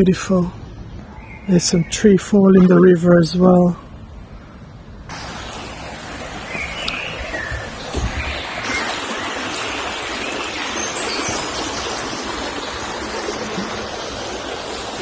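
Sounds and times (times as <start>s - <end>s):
river water rushing: 5.1s - 15.0s.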